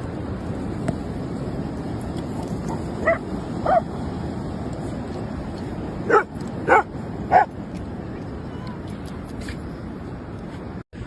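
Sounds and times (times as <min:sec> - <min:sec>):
dog barking: 0:03.0 - 0:03.8, 0:06.1 - 0:07.5.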